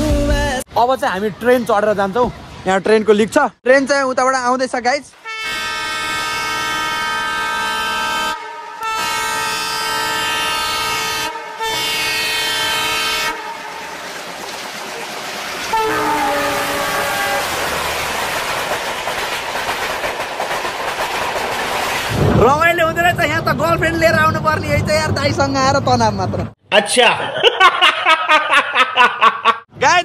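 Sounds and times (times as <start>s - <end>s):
train rolling on track: 4.4s - 26.6s
train horn blasts: 5.2s - 14.2s, 15.7s - 17.6s.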